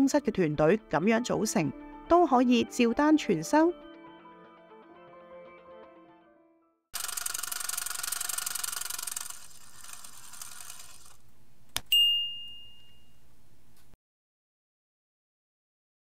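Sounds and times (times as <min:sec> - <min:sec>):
rapid ratchet-like rattle: 0:07.0 - 0:11.2
bright bell-like ding: 0:11.9 - 0:13.2.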